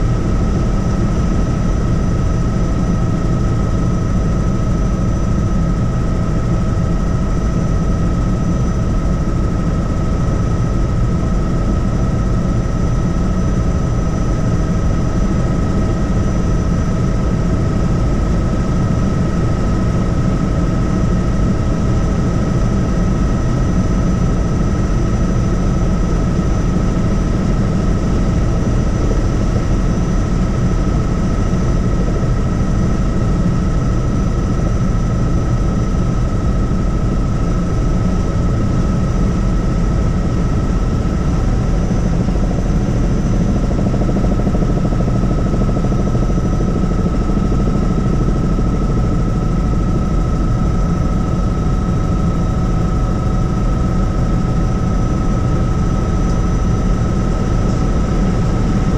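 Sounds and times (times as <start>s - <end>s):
constant high whine: 0.0s - 58.9s
helicopter engine and rotor noise: 0.0s - 58.9s.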